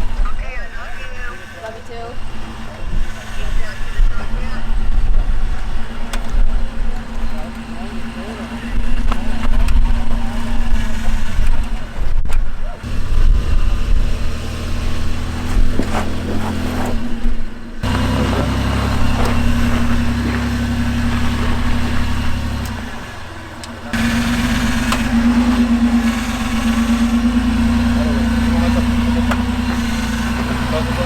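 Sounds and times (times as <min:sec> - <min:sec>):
off-road vehicle engine at low revs: 0:00.0 - 0:31.0.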